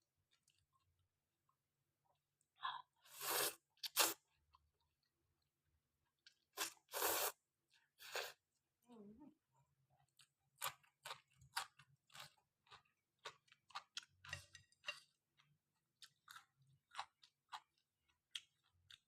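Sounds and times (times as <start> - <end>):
mouth chewing noodles: 3.0 - 4.2, 10.0 - 19.0.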